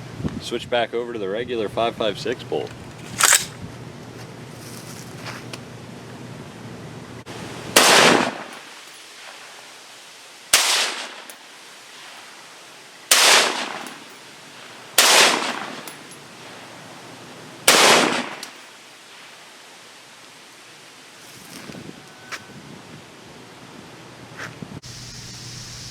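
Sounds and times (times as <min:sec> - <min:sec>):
rifle shots with echo: 0:07.8 - 0:08.7, 0:10.6 - 0:11.3, 0:13.1 - 0:14.0, 0:15.0 - 0:15.9, 0:17.7 - 0:18.4.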